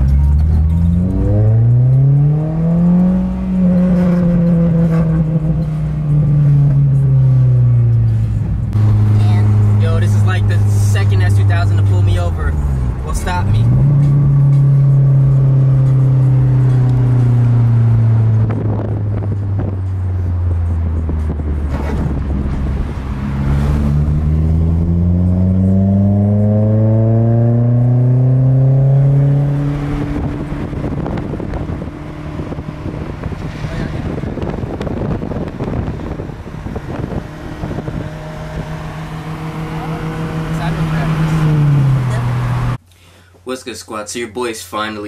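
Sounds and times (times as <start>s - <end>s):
car engine running: 0.0s - 42.8s
wind buffeting microphone: 18.3s - 20.0s, 29.6s - 42.8s.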